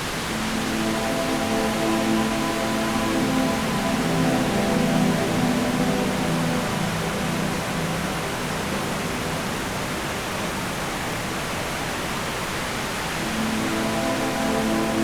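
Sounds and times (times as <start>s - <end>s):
waterfall rushing: 0.0s - 15.0s
background music: 0.2s - 10.4s, 13.2s - 15.0s.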